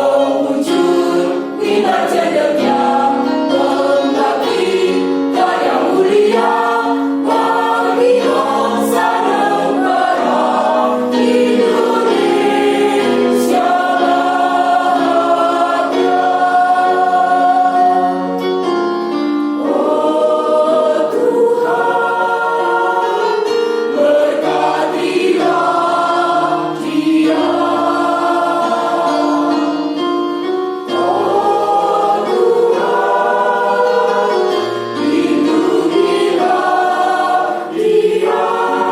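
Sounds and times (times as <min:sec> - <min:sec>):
choir singing in harmony: 0:00.0 - 0:38.9.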